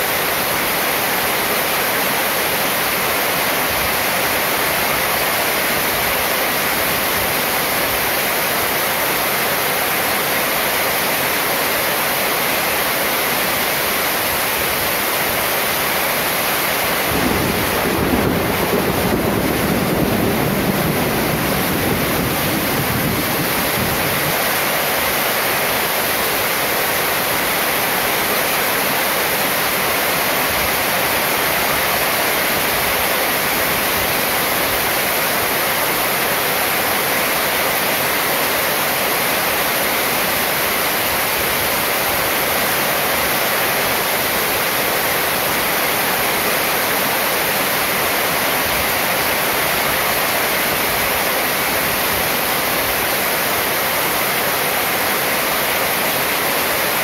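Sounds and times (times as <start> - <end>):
heavy rain on a metal roof: 0.0 - 57.0
thunder rumble: 17.0 - 24.4.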